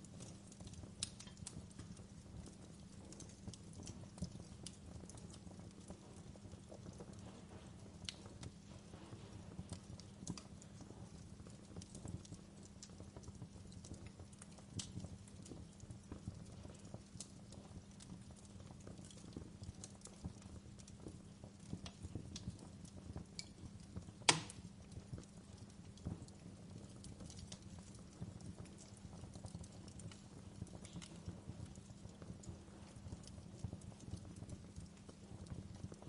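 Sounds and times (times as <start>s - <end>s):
wood fire crackling: 0.0s - 36.0s
sharp loud fire pop: 24.3s - 24.6s.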